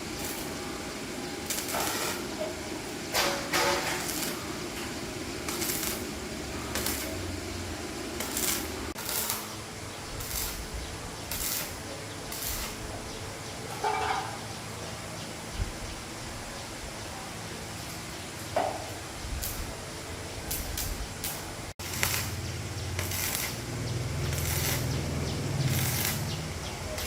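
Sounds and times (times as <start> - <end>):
steady hum: 0.0 - 13.7
metal tools clinking and clanking: 13.7 - 14.4.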